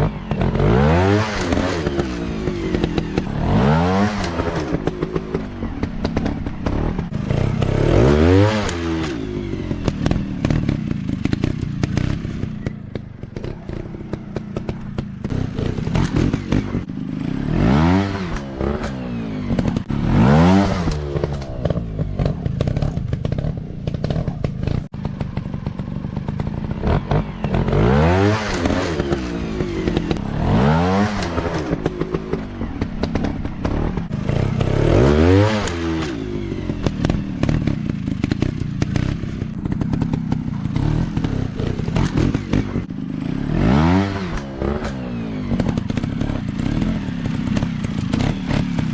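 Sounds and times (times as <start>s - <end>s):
dirt bike engines revving: 0.0s - 48.9s
engine clattering and knocks: 0.0s - 48.9s.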